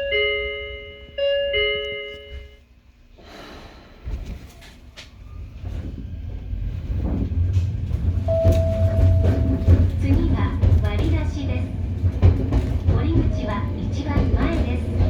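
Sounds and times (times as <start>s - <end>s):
train door chime: 0.0s - 2.6s, 8.3s - 10.4s
train running rumble: 3.6s - 15.0s.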